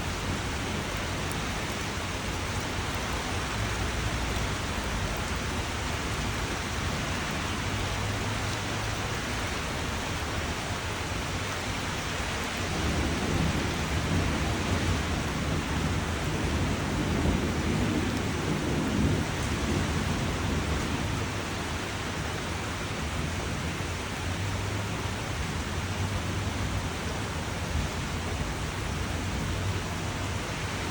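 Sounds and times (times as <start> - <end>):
steady rain: 0.0 - 30.9
distant thunder rumble: 12.4 - 21.6.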